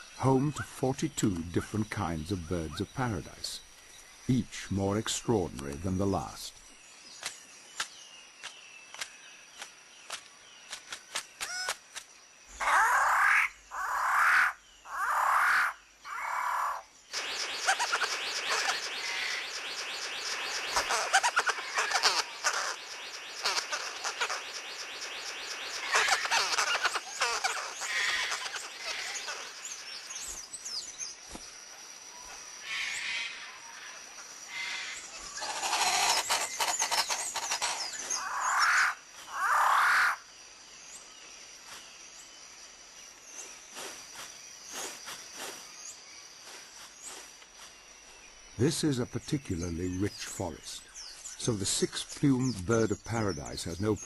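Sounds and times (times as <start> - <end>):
loud bird calls: 0.0 - 42.4
birds chirping and trilling: 0.0 - 54.0.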